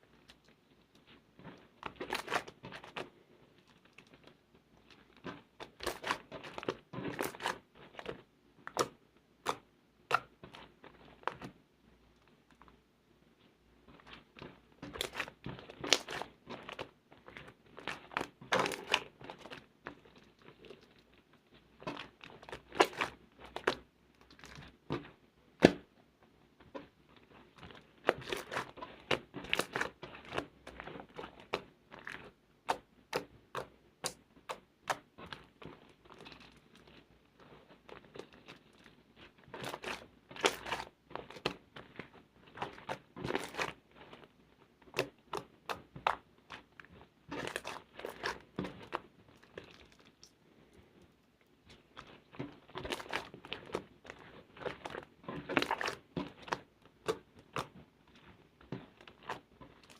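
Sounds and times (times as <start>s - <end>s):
slime squished by hand: 13.9s - 25.9s, 27.3s - 50.4s, 51.7s - 59.9s.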